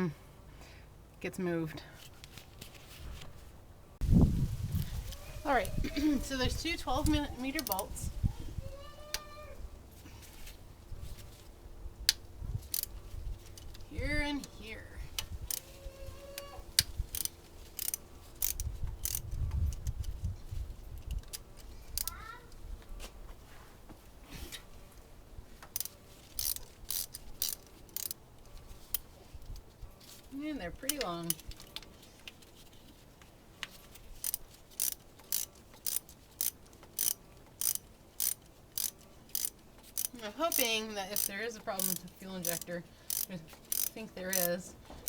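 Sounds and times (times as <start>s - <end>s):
ratchet wrench clicking: 12.1s - 13.7s, 15.2s - 15.7s, 16.8s - 20.2s, 21.0s - 22.2s, 25.7s - 28.2s, 34.2s - 44.6s
metal tool clicks: 16.8s - 20.2s.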